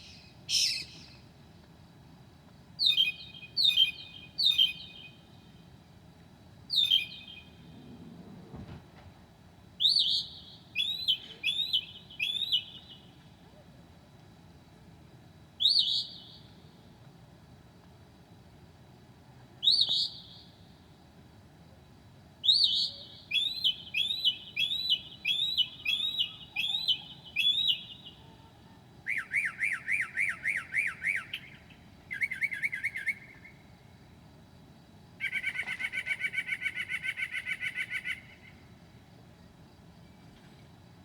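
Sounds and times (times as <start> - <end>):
mockingbird singing: 0.0 - 1.2, 9.8 - 13.0, 22.4 - 28.4, 29.1 - 33.6, 35.2 - 38.5
rapid rattling bird call: 35.2 - 38.5.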